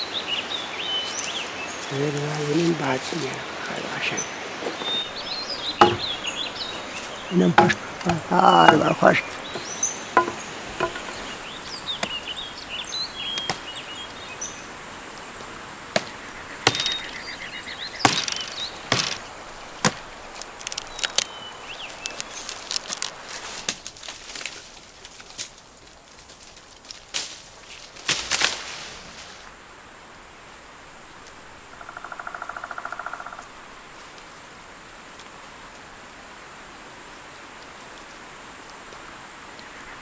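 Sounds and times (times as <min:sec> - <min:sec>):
insects buzzing: 0:00.0 - 0:23.9, 0:28.0 - 0:37.5
axe chopping branches: 0:05.8 - 0:06.2, 0:07.5 - 0:11.2, 0:13.3 - 0:13.7, 0:15.9 - 0:17.2, 0:18.0 - 0:21.3, 0:28.0 - 0:28.7.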